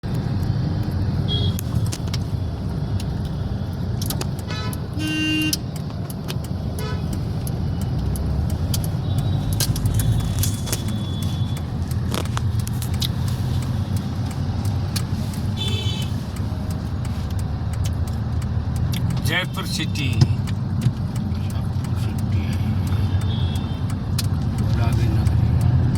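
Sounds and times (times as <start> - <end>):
traffic engine and road rumble: 0.0 - 25.9
vehicle horns honking: 1.3 - 1.6, 4.4 - 5.7, 6.8 - 7.2, 15.6 - 16.2, 23.0 - 23.9.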